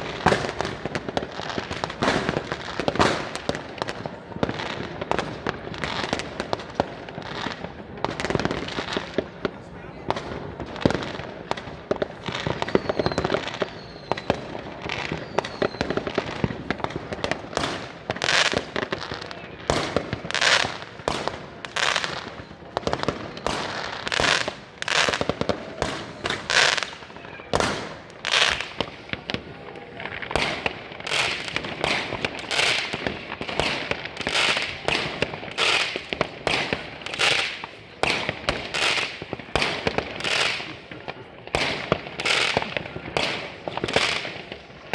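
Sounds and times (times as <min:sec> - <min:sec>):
fireworks bangs and crackling: 0:00.0 - 0:44.9
falling firework whistles: 0:12.4 - 0:16.9.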